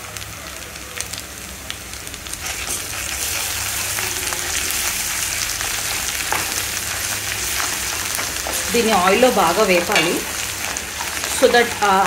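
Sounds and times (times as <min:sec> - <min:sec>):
onions sizzling in hot oil: 0:00.0 - 0:12.0
wooden spoon stirring: 0:02.4 - 0:12.0.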